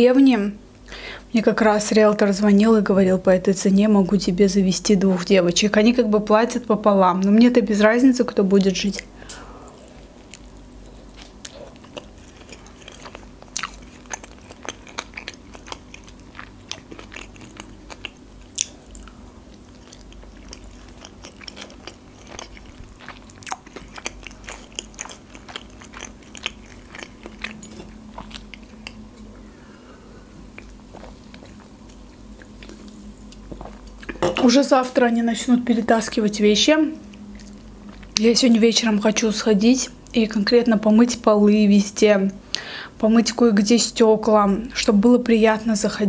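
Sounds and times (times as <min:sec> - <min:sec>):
faint steady hum: 0:00.0 - 0:46.0
wet chewing mouth clicks: 0:10.3 - 0:29.0.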